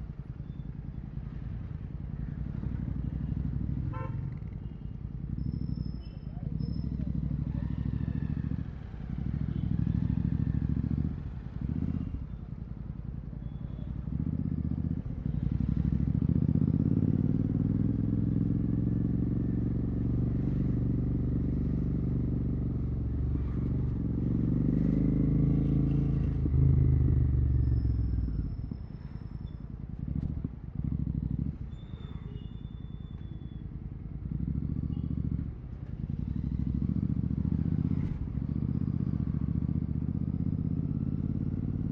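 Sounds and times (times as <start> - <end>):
motorcycle engine revving: 6.4 - 12.2, 13.9 - 32.6, 33.6 - 41.9.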